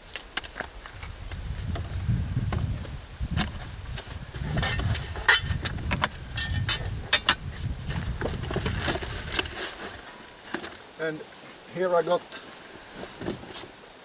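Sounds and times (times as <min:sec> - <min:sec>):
low rumble of handling noise: 0:00.0 - 0:10.9
tools clinking and knocking: 0:04.5 - 0:07.4.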